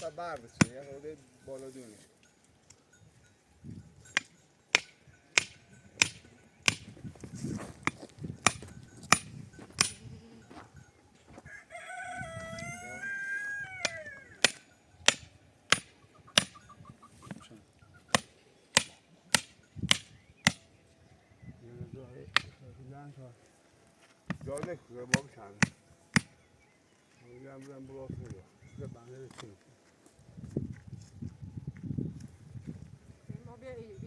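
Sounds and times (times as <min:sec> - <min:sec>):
rooster crowing: 0:11.4 - 0:14.4.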